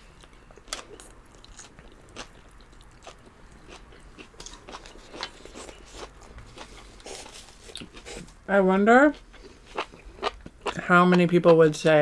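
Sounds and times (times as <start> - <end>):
chewing and slurping noodles: 0.7 - 8.3, 9.3 - 10.8.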